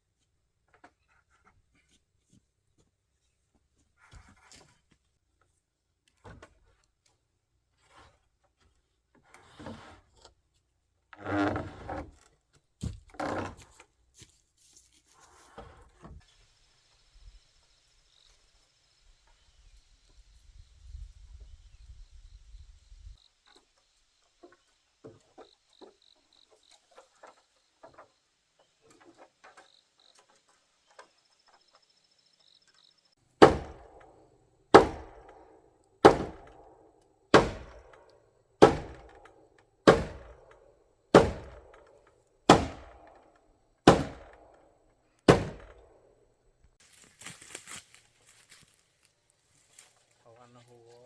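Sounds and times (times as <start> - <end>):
tool striking wood: 33.4 - 36.7, 37.3 - 43.2, 43.8 - 44.6, 45.3 - 45.9.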